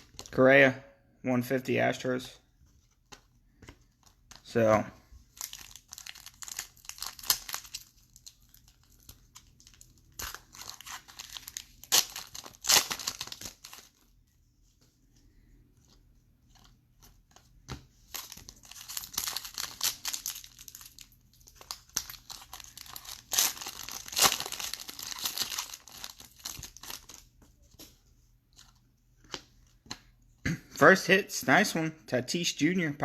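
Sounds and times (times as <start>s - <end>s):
plastic wrapper tearing and crinkling: 5.3s - 14.1s, 18.1s - 27.2s.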